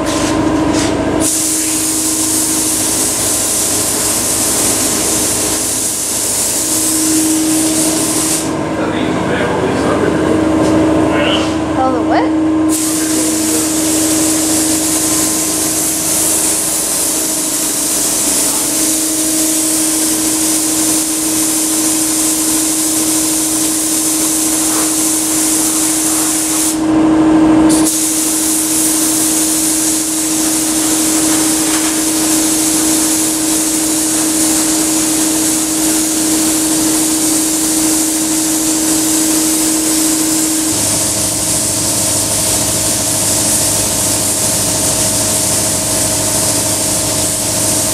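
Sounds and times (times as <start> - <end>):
steady hum: 0.0 - 47.9
paint spray gun hissing: 1.2 - 8.6, 12.7 - 26.8, 27.7 - 47.9
deeper hum: 6.8 - 19.4.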